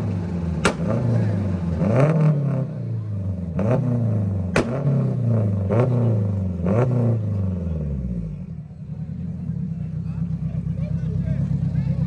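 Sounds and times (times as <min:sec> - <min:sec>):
car engine revving: 0:00.0 - 0:12.0
exhaust bang: 0:00.5 - 0:02.4, 0:03.7 - 0:08.4.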